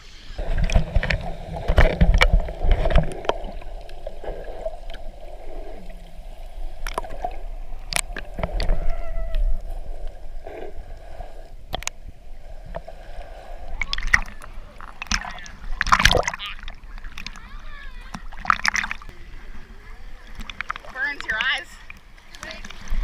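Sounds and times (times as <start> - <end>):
sea water sloshing and splashing: 0.0 - 23.0.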